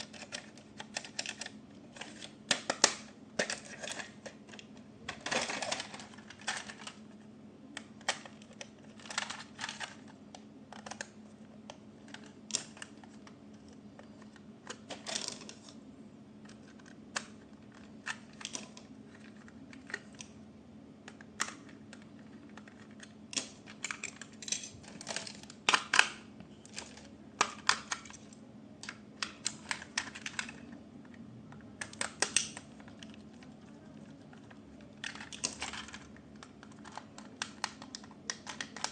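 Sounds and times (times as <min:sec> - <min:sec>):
plastic toy parts clicking: 0:00.0 - 0:07.0, 0:07.8 - 0:10.1, 0:21.1 - 0:30.7, 0:31.8 - 0:38.9
faint low hum: 0:00.0 - 0:38.9.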